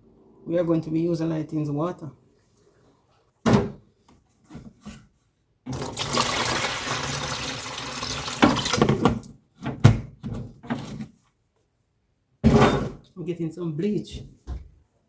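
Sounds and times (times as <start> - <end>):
water gushing: 5.7 - 9.2.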